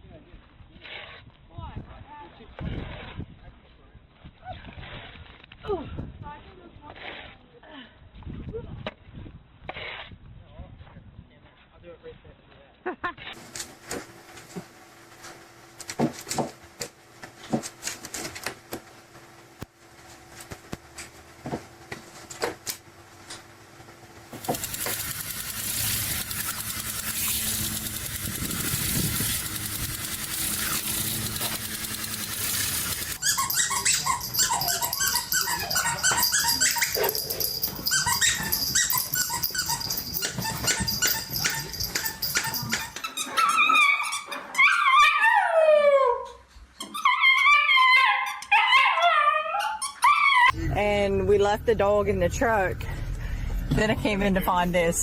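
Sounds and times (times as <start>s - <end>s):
dog whining and howling: 30.6s - 50.6s
steady noise: 50.6s - 55.0s.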